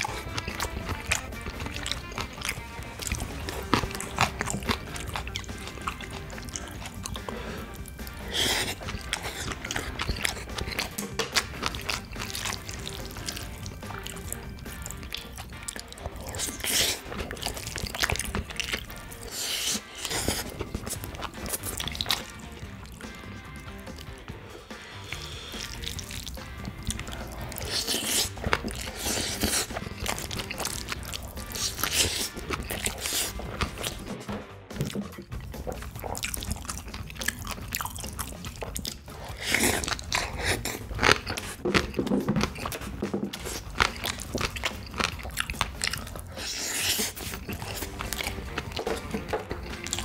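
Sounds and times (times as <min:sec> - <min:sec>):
chopsticks scraping a bowl: 0:00.0 - 0:22.3, 0:26.9 - 0:34.2, 0:39.1 - 0:45.1, 0:46.0 - 0:50.0
soft background music: 0:00.0 - 0:50.0
wet chewing and lip-smacking: 0:00.0 - 0:50.0.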